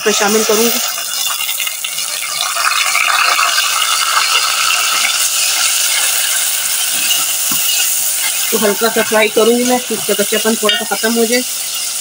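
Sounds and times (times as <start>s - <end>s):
paste sizzling in hot oil: 0.0s - 12.0s
metal ladle scraping a pot: 3.5s - 12.0s.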